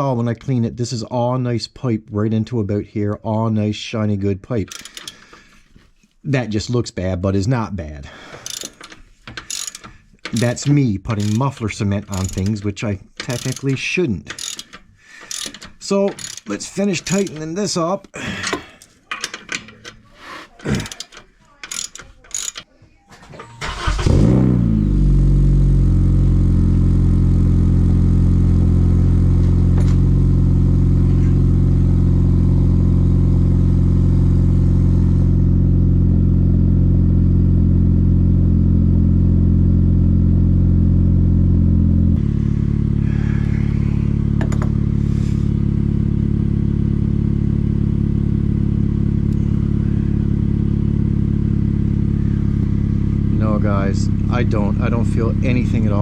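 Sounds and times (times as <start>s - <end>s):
ratchet clicking: 4.7s - 5.3s, 8.3s - 12.6s, 13.2s - 17.5s, 18.8s - 22.7s
car engine starting and idling: 8.3s - 17.7s, 18.4s - 56.0s.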